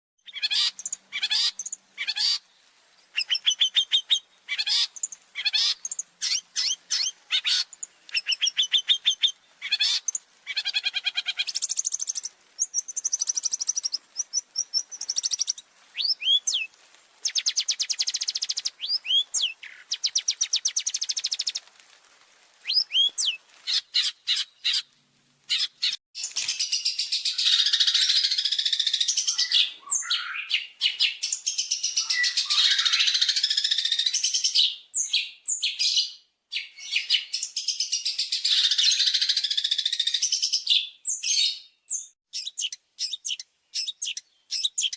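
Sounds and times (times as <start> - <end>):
bird singing varied song: 0.2 - 21.6, 22.7 - 24.8, 25.5 - 44.9
harsh bird chattering: 3.2 - 16.6.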